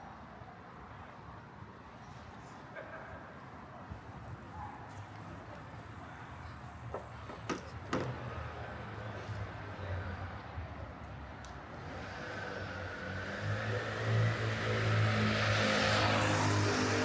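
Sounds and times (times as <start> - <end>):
faint chatter of passers-by: 0.3 - 13.1
low hum of traffic: 1.9 - 17.0.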